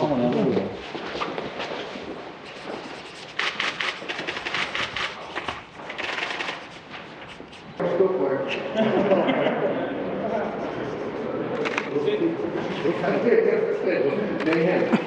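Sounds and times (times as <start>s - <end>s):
camera shutters clicking: 3.4s - 6.7s.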